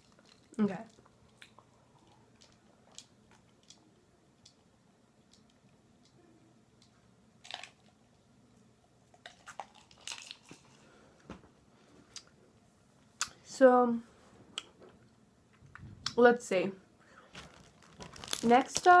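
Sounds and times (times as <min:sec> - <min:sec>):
candy crackling: 0:00.0 - 0:04.6, 0:07.4 - 0:08.1, 0:09.1 - 0:10.9, 0:17.1 - 0:19.0.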